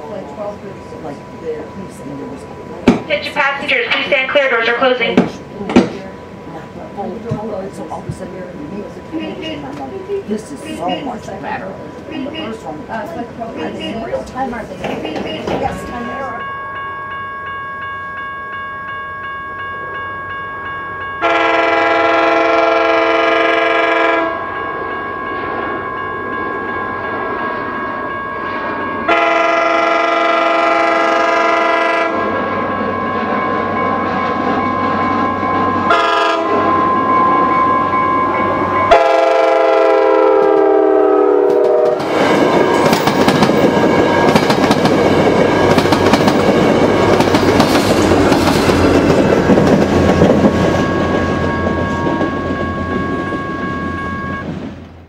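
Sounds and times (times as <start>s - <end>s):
train cars rushing past: 0.0s - 55.0s
train horn blasts: 21.2s - 24.5s, 29.1s - 32.4s, 35.9s - 37.0s, 38.9s - 42.8s
wheels clicking over rail joints: 41.6s - 53.4s.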